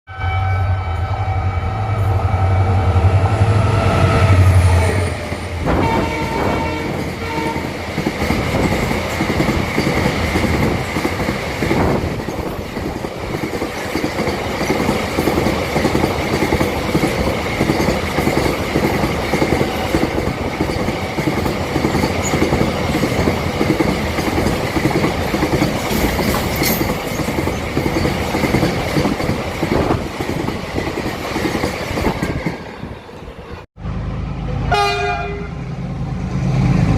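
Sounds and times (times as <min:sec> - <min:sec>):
train horn: 0:00.1 - 0:07.8, 0:34.4 - 0:35.7
train wheels clattering: 0:05.2 - 0:32.7.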